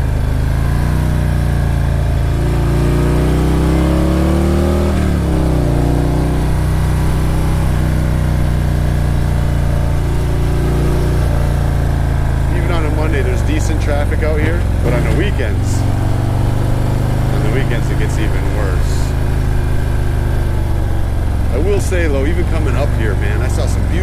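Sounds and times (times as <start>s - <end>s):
motorcycle engine under throttle: 0.0s - 24.0s.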